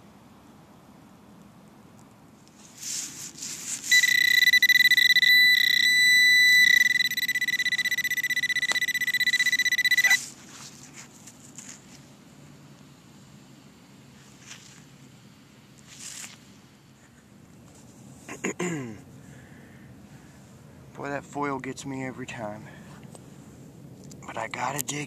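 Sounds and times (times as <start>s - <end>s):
rustling: 2.4s - 4.4s, 10.1s - 12.2s, 14.1s - 14.9s, 15.8s - 18.3s
metal detector buzzy high tone: 3.9s - 10.3s.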